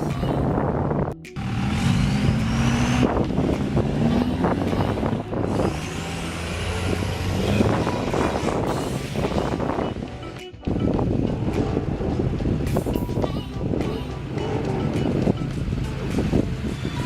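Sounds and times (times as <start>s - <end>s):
car engine accelerating: 1.4s - 13.0s, 13.7s - 17.0s.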